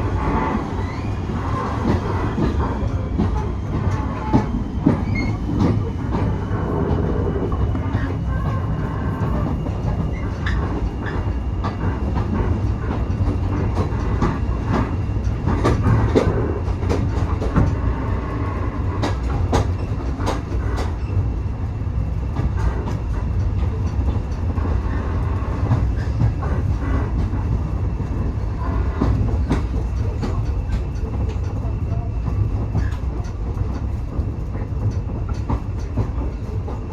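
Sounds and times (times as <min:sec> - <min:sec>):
train rumbling along track: 0:00.0 - 0:36.9
wheels clicking over rail joints: 0:18.9 - 0:21.2, 0:25.4 - 0:36.9.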